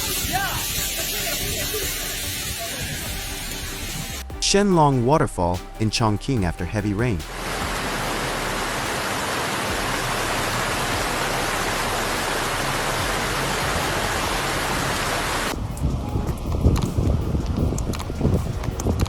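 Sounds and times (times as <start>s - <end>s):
waterfall rushing: 0.0s - 4.3s, 7.3s - 15.6s.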